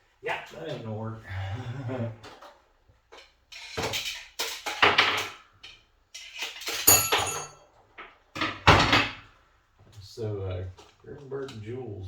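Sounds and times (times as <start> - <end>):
metal gear clattering and clinking: 6.6 - 7.6.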